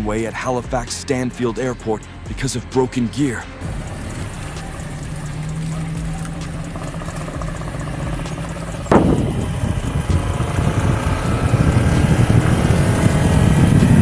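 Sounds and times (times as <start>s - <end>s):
airliner rumble: 0.0s - 14.0s
airliner whine: 0.0s - 14.0s.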